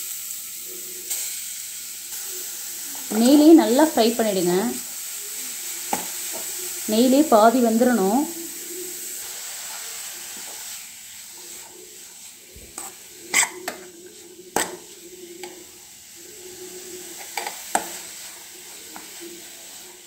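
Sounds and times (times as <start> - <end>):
carrot sizzling in a pan: 0.0 - 20.0
spoon scraping pan: 5.8 - 20.0.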